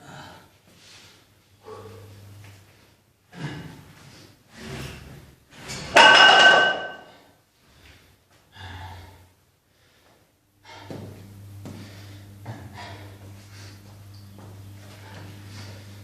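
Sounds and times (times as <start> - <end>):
person breathing hard: 0.0 - 2.1, 7.7 - 14.0
gym weights clanking: 5.9 - 7.2.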